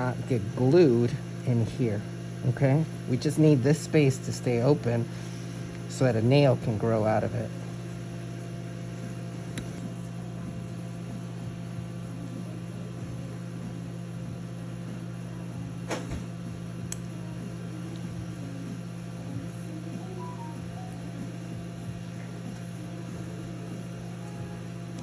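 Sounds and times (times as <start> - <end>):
low ventilation hum: 0.0 - 25.0.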